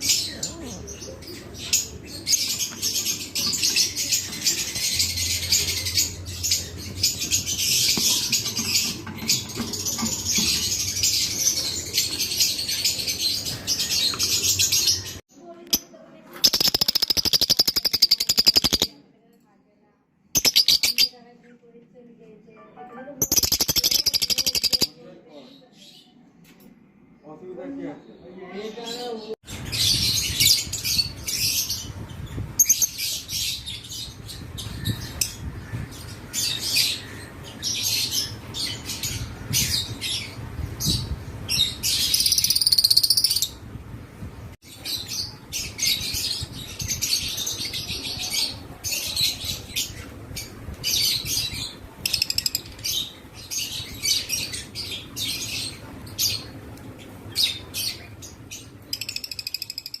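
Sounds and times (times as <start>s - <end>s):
lovebirds chirping: 0.0s - 19.0s, 20.4s - 26.2s.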